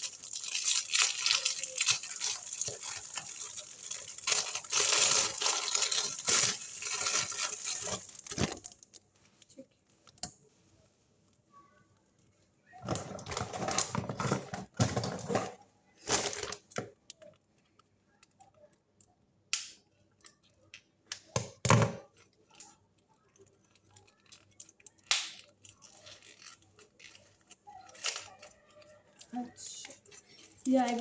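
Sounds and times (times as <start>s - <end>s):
packaging torn and crinkled: 0.0s - 9.0s, 23.7s - 31.0s.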